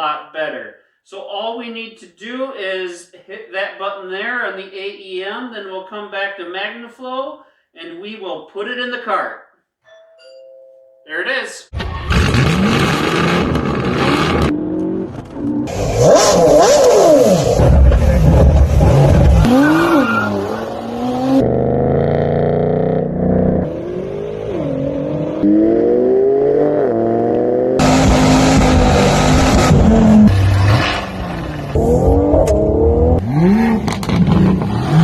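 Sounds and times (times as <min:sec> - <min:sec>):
car engine revving: 0:11.8 - 0:35.0.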